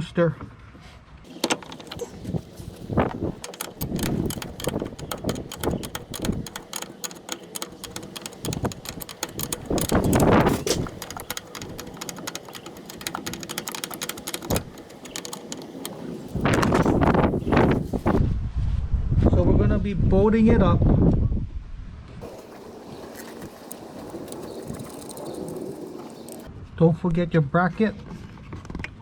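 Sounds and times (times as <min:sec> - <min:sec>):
metallic clicking of hand tools: 0:01.3 - 0:18.2, 0:22.2 - 0:26.5.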